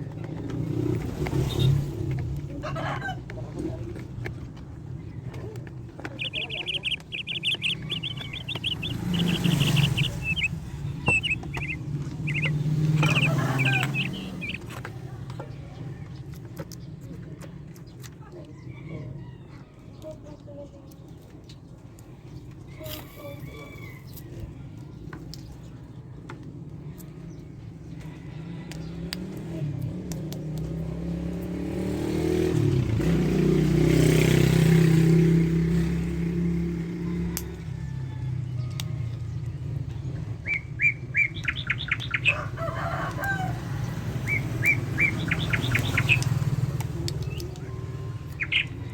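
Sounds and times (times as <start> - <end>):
vehicle engine running: 0.0 - 16.2, 29.0 - 48.9
high chirps: 6.1 - 14.7, 44.2 - 46.5, 48.3 - 48.9
sharp clicks: 6.1 - 14.9, 44.3 - 47.7.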